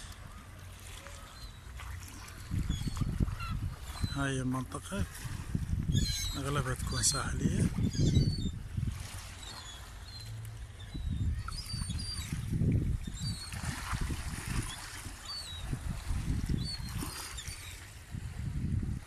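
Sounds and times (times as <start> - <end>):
water lapping at shore: 0.0 - 19.0
high bird calls: 5.9 - 8.6, 9.4 - 13.6.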